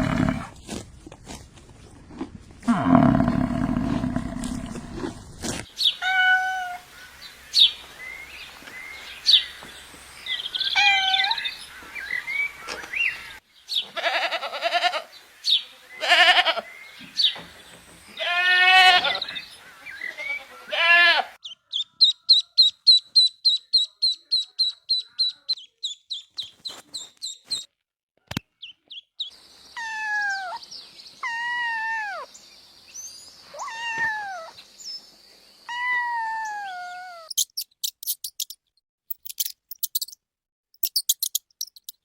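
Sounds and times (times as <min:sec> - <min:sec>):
goats bleating: 0:00.0 - 0:00.5, 0:18.2 - 0:19.2, 0:20.2 - 0:21.4
low rough animal sound: 0:00.0 - 0:00.6, 0:02.6 - 0:05.6.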